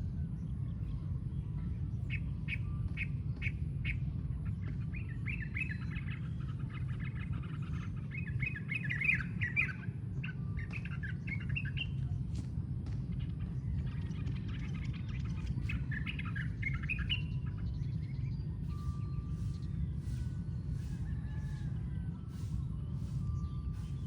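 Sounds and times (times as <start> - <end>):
steady low rumble: 0.0 - 24.0
bird calling: 5.0 - 11.9.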